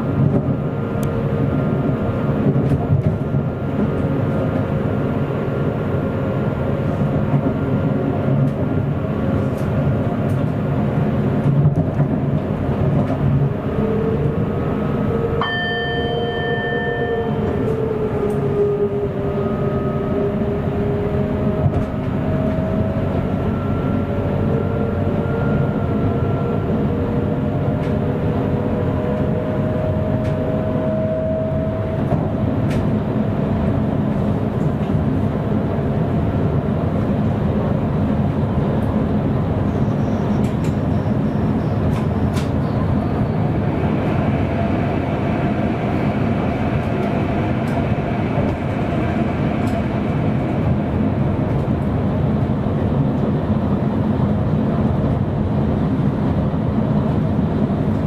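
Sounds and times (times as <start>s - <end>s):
train wheels rumbling on track: 0.0s - 58.0s
train motor whine: 13.0s - 34.2s.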